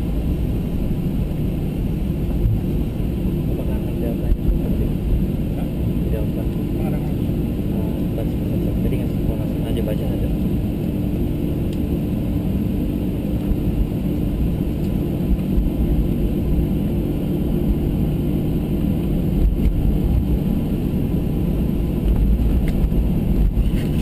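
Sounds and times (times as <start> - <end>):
jet engines rumbling in cabin: 0.0 - 24.0.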